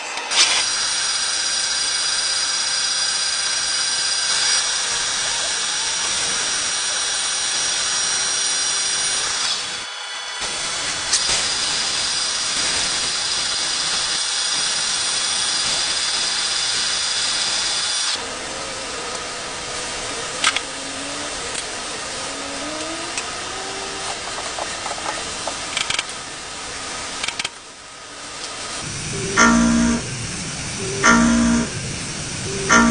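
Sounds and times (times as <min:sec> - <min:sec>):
machine tool cutting metal: 0:00.0 - 0:18.3.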